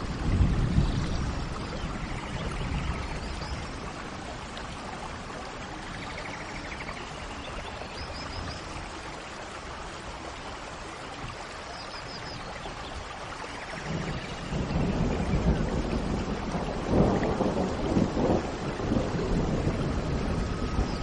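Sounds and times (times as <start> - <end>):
low thunder rumble: 0.0 - 5.3, 13.7 - 21.0
rain falling: 0.0 - 21.0.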